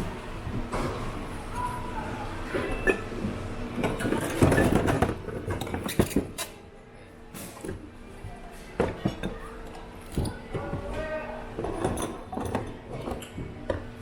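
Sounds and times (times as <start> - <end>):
dishes and glassware clinking: 2.5 - 6.6, 10.1 - 13.8.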